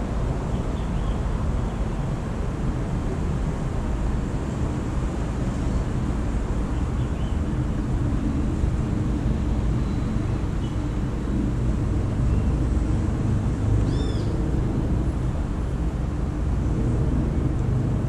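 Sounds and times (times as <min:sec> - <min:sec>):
distant city traffic rumble: 0:00.0 - 0:18.0.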